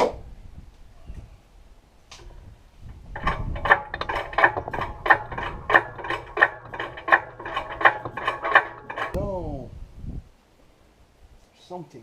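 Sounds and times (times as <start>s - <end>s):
engine hoist clanking: 3.1s - 9.2s
engine hoist clicking: 3.1s - 9.2s.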